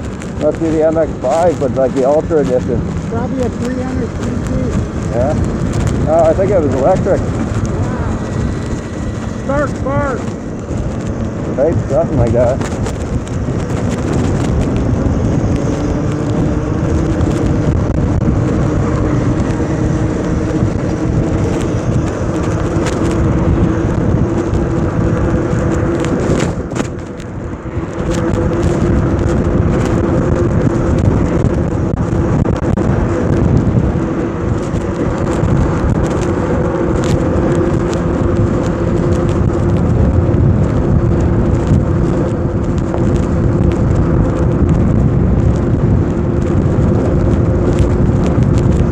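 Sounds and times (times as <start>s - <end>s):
electric motor humming: 0.0s - 29.1s
wind buffeting microphone: 0.0s - 48.9s.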